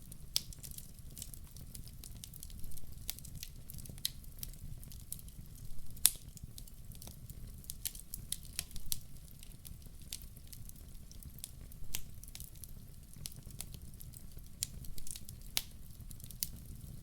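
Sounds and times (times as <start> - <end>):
wood fire crackling: 0.0 - 17.0
sharp pops of fire: 5.2 - 10.2, 11.7 - 12.6.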